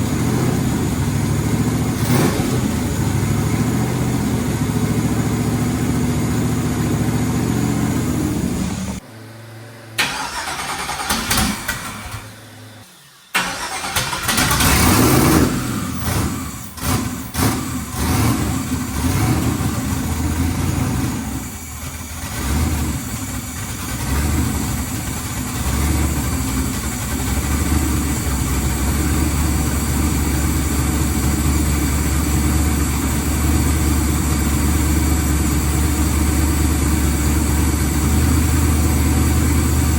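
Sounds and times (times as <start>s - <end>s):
car engine revving and idling: 0.0s - 39.9s.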